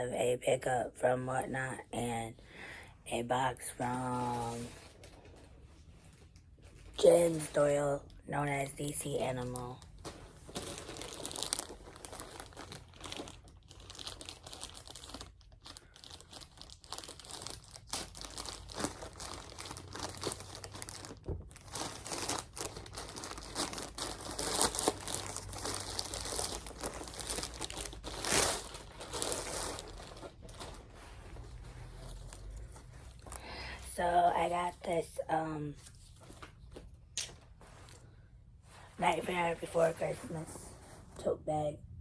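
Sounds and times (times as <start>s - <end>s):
packaging crinkling: 9.4s - 33.6s.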